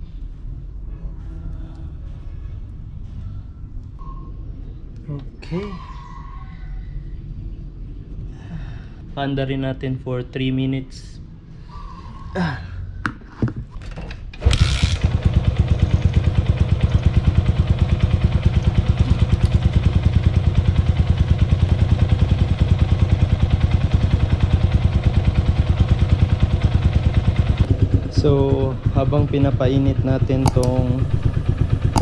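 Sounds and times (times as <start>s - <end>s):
motorcycle engine starting and idling: 14.3s - 32.0s
light clicks: 30.5s - 30.8s.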